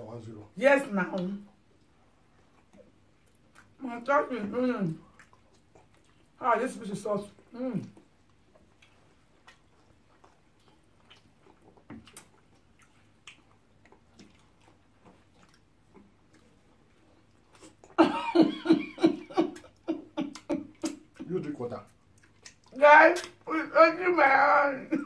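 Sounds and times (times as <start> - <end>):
chewing and lip smacks: 1.2 - 3.8, 4.9 - 18.0, 19.4 - 23.5.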